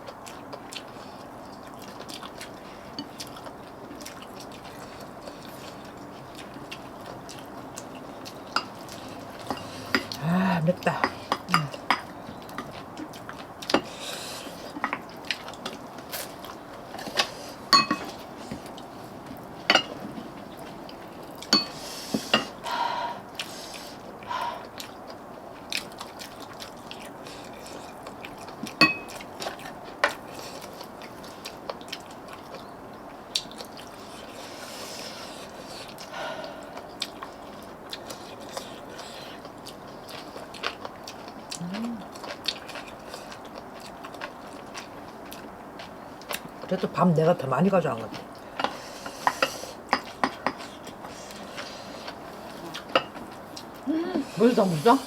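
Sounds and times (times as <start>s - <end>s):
chewing: 0.0s - 46.9s, 48.0s - 55.0s
cutlery clinking on dishes: 17.2s - 18.2s, 19.7s - 20.0s, 21.5s - 22.6s, 28.8s - 29.2s.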